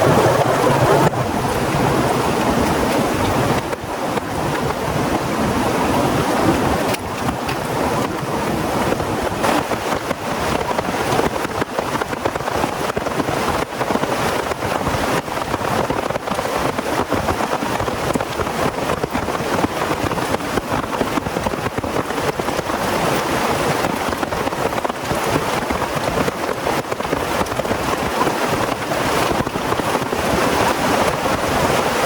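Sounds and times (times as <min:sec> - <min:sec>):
heavy rain falling: 0:00.0 - 0:32.0
raindrops tapping: 0:00.0 - 0:32.0.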